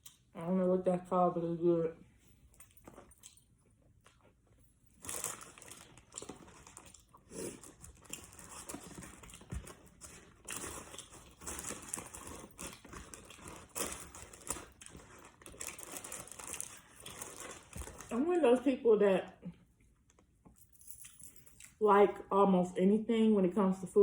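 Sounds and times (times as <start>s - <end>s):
person chewing crispy chicken: 5.0s - 18.1s
paper wrapper crinkling: 5.0s - 18.2s.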